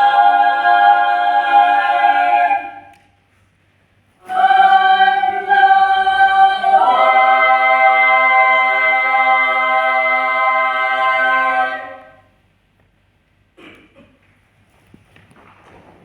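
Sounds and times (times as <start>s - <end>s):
voices singing a cappella: 0.0s - 3.1s, 4.2s - 12.4s.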